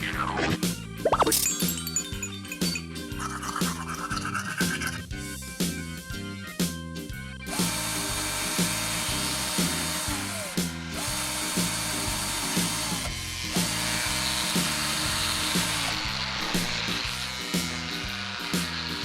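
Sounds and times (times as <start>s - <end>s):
small power tool running: 7.5s - 19.0s.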